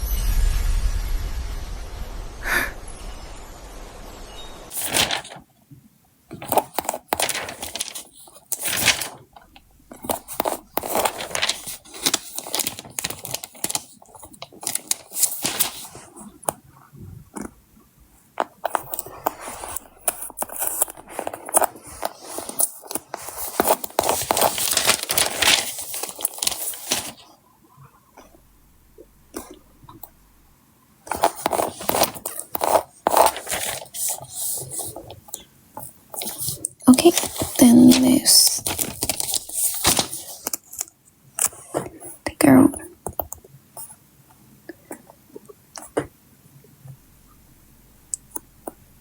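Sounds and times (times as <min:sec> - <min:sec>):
stickers peeling and crinkling: 0:06.3 - 0:16.6, 0:18.4 - 0:27.3, 0:31.1 - 0:41.7.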